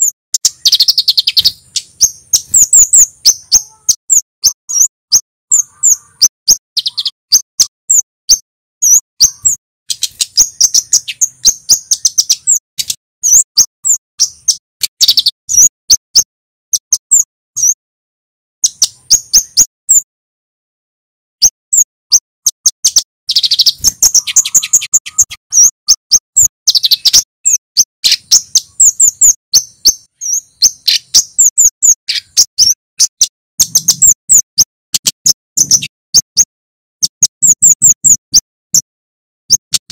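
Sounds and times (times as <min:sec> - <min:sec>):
bird calling high cit notes: 0:00.4 - 0:08.0, 0:22.9 - 0:25.7.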